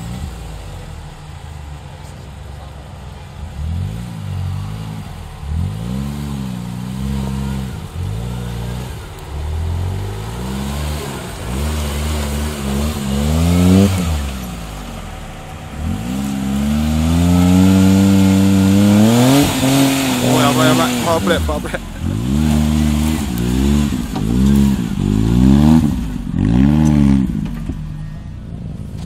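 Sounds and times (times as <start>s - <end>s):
small engine revving in bursts: 15.8s - 27.4s.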